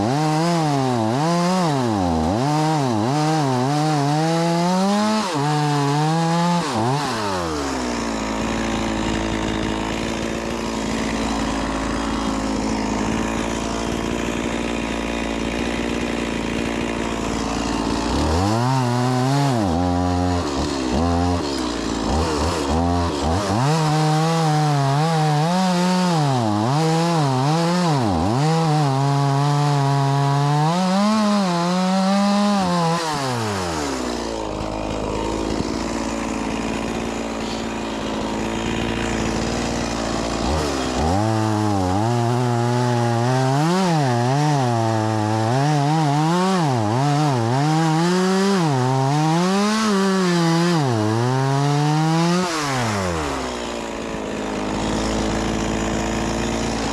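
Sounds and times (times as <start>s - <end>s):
chainsaw cutting logs: 0.0s - 56.9s.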